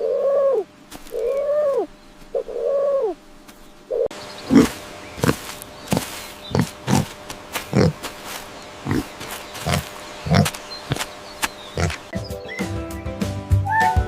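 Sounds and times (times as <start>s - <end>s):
pig grunting: 4.4s - 12.1s
music with steady tones: 12.1s - 14.0s.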